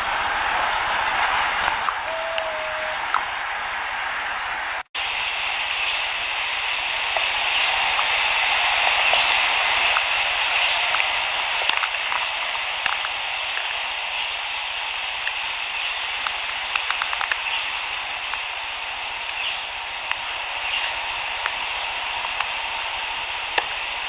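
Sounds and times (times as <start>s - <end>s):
steady hiss: 0.0s - 24.0s
faint clicks and pops: 10.9s - 13.7s, 16.2s - 17.5s.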